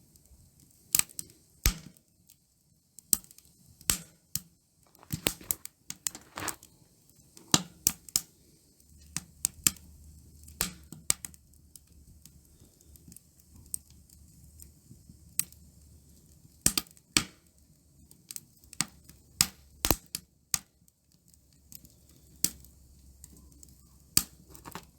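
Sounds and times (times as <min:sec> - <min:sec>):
wood fire crackling: 0:00.0 - 0:24.9.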